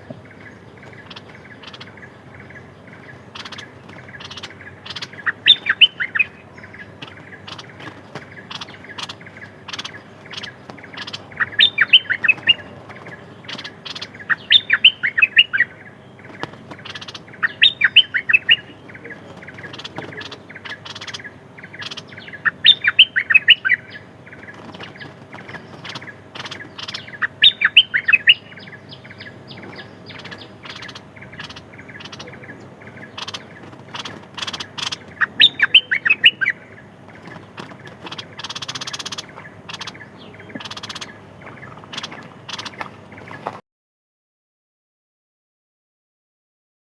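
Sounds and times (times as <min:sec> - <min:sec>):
songbird whistling: 0:03.4 - 0:06.9, 0:08.5 - 0:12.7, 0:13.5 - 0:15.8, 0:16.8 - 0:18.8, 0:19.6 - 0:24.0, 0:25.9 - 0:32.4, 0:34.0 - 0:36.6.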